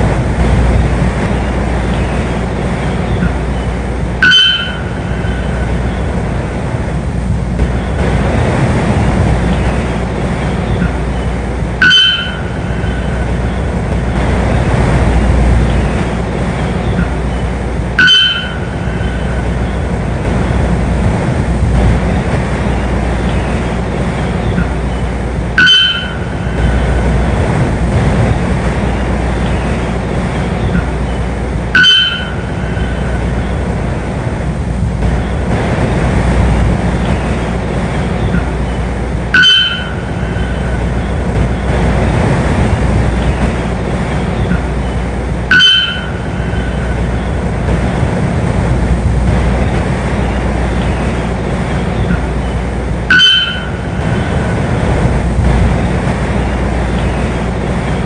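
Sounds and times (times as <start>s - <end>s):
steady rumbling noise: 0.0s - 58.0s
bird two-toned call: 3.0s - 6.3s, 10.6s - 13.8s, 16.8s - 20.0s, 24.4s - 27.1s, 30.5s - 33.7s, 38.1s - 41.7s, 44.2s - 47.4s.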